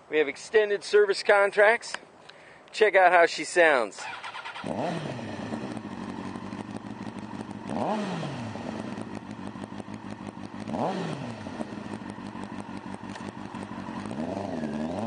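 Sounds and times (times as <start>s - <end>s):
motorcycle engine idling and revving: 4.0s - 15.0s.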